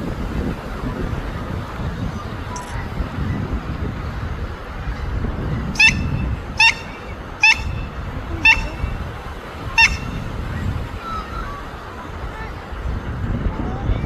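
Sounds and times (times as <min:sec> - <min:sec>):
animal high-pitched cries: 0:05.8 - 0:09.0.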